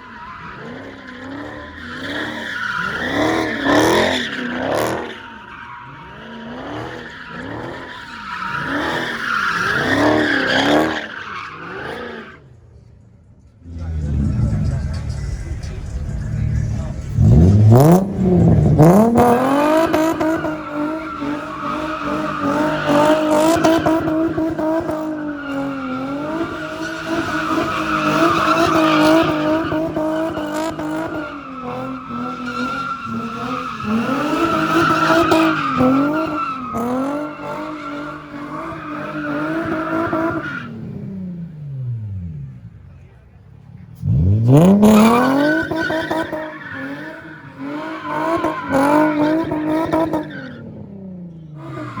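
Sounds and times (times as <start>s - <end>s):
car engine revving: 0.0s - 12.5s, 13.4s - 52.0s
tyres squealing: 13.7s - 40.7s.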